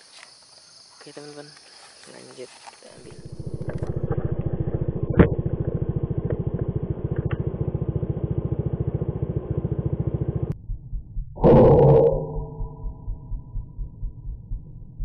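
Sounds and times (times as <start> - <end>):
motorcycle engine puttering: 3.0 - 10.5.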